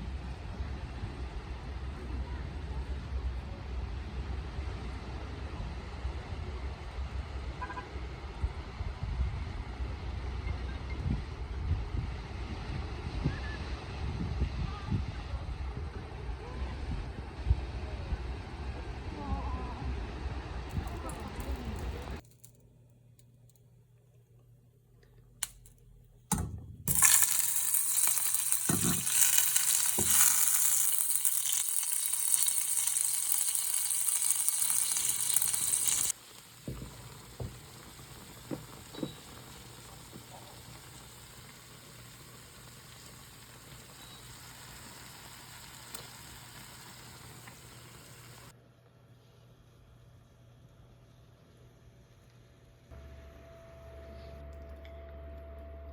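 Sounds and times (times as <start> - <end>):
loud sizzling hiss: 26.9 - 48.5.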